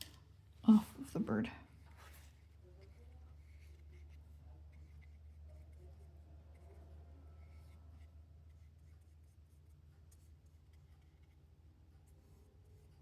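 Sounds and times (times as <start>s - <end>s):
brush scratching on paper: 1.9s - 6.8s, 7.4s - 11.4s.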